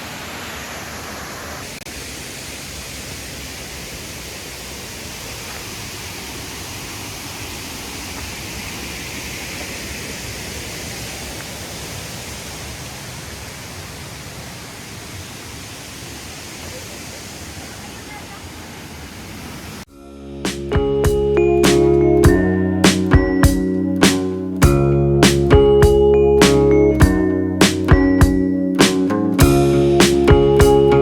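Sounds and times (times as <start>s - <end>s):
water pouring from dam: 0.0s - 19.8s.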